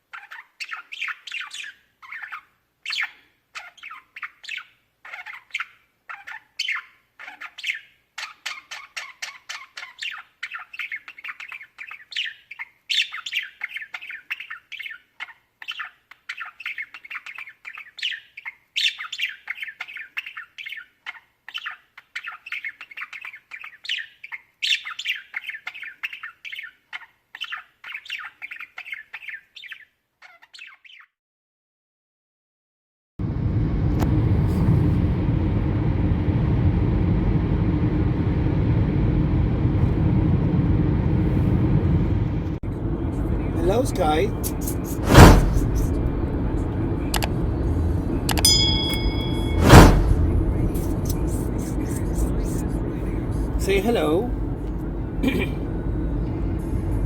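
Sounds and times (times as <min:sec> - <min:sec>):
budgerigars chirping and chattering: 0:00.1 - 0:31.1.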